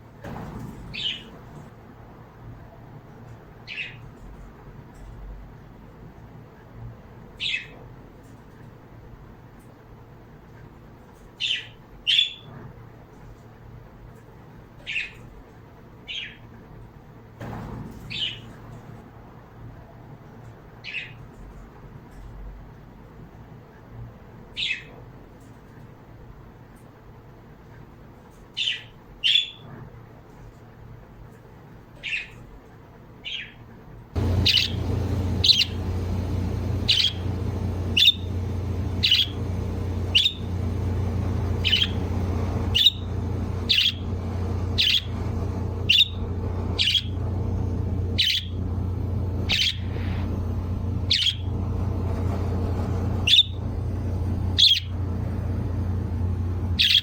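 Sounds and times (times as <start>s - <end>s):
pet bird chirping: 0.9s - 1.4s, 18.0s - 18.5s, 28.6s - 29.6s, 32.0s - 32.4s, 34.2s - 57.0s
steady low hum: 17.4s - 19.0s, 34.1s - 57.0s.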